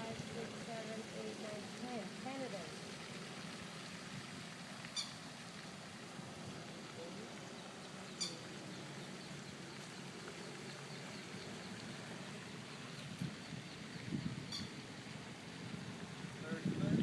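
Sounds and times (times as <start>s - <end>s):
low outdoor hush: 0.0s - 17.0s
faint high bird twittering: 4.9s - 5.2s, 7.5s - 14.8s.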